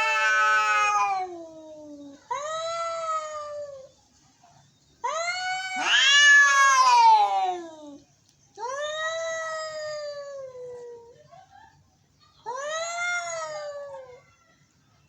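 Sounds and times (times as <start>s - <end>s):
cats yowling: 0.0s - 3.9s, 5.0s - 8.0s, 8.6s - 11.1s, 12.5s - 14.3s.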